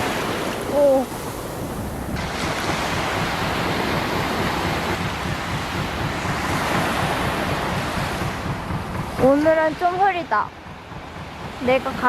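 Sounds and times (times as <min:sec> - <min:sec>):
sea surf washing on beach: 0:00.0 - 0:12.0
wind buffeting microphone: 0:00.0 - 0:12.0.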